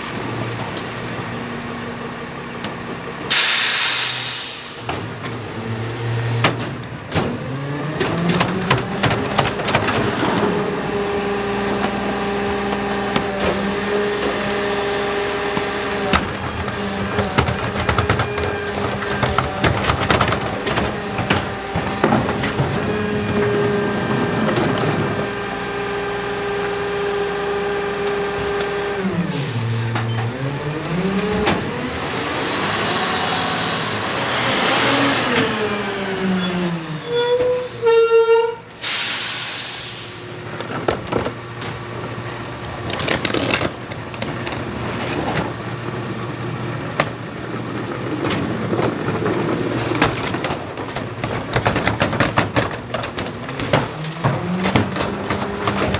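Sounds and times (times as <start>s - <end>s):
garbage truck engine revving: 0.0s - 37.8s, 38.6s - 55.9s
air brake hiss: 3.3s - 4.9s, 38.7s - 40.3s
hydraulic whine: 7.4s - 40.4s.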